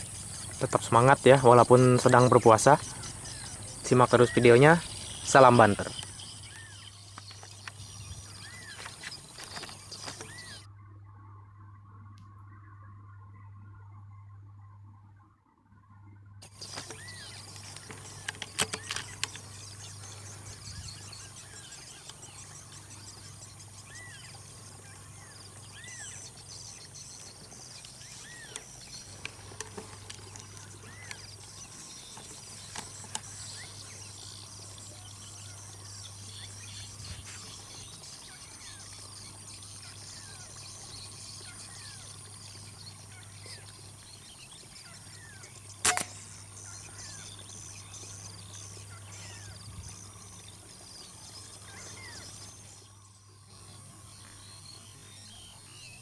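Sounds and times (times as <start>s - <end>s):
insects chorus: 0.0s - 10.7s, 16.4s - 56.0s
bird calls: 0.0s - 56.0s
low steady hum: 0.0s - 56.0s
sharp clicks: 16.5s - 19.8s, 45.7s - 46.5s.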